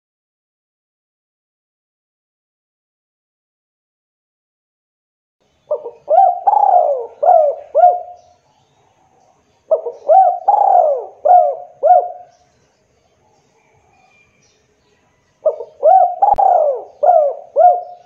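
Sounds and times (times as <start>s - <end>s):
dove cooing: 5.7s - 8.4s, 9.7s - 12.3s, 15.4s - 18.0s.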